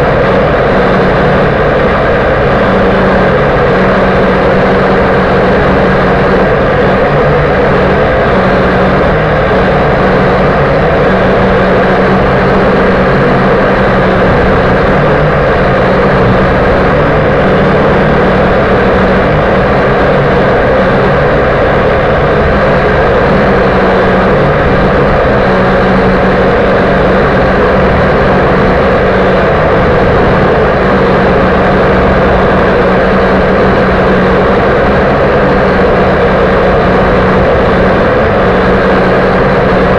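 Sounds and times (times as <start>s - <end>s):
quadcopter propellers buzzing: 0.0s - 39.9s.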